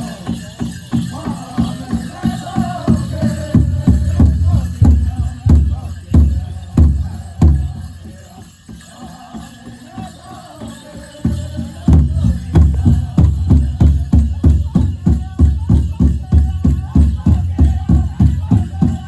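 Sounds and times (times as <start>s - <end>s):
men singing: 0.0s - 19.0s
big drum beating: 3.0s - 7.9s, 11.8s - 19.0s.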